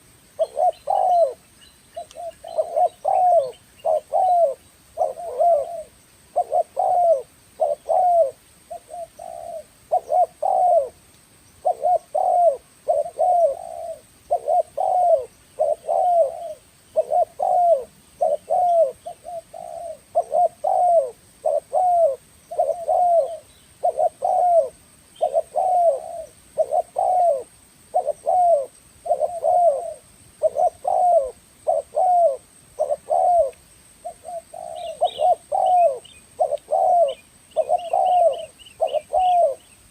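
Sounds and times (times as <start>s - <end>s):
dove cooing: 0.0s - 1.4s, 2.0s - 11.0s, 11.6s - 39.9s.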